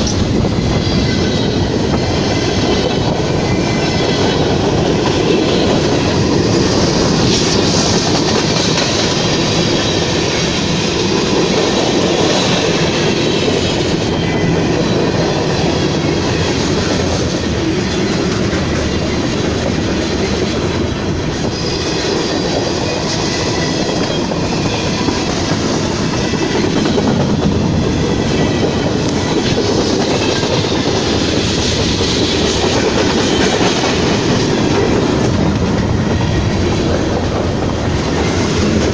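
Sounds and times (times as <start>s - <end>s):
train rumbling past: 0.0s - 38.9s.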